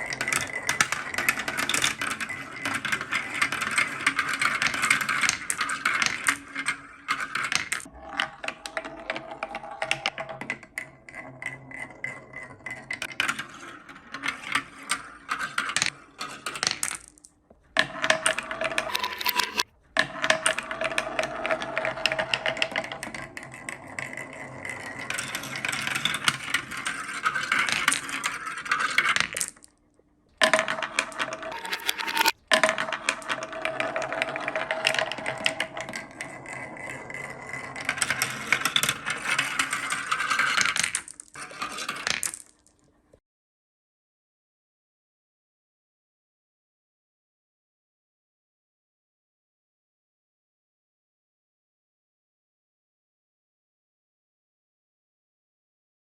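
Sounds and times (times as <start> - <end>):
marbles rolling down wooden tracks: 0.0 - 29.8, 30.4 - 42.9.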